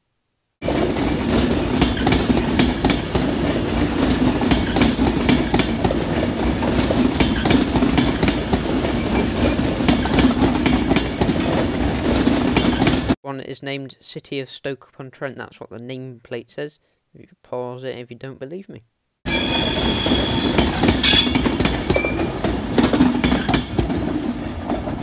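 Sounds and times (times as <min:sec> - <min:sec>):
train wheels rumbling on rail: 0:00.6 - 0:13.2, 0:19.3 - 0:25.0
wheels clacking over rail joints: 0:00.6 - 0:13.2, 0:20.6 - 0:25.0.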